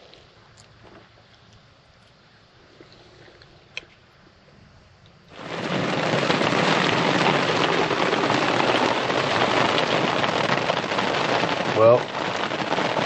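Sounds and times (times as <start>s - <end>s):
heavy rain pouring: 5.3s - 13.0s.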